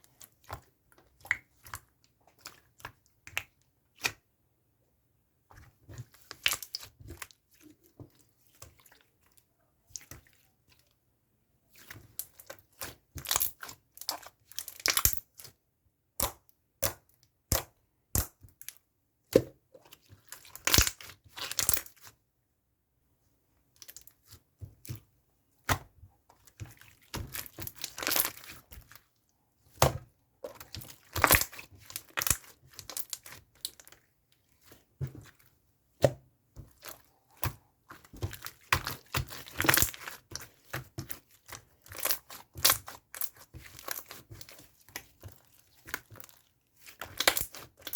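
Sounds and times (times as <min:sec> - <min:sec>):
slime crackling and popping: 0:29.8 - 0:33.8, 0:36.7 - 0:47.9.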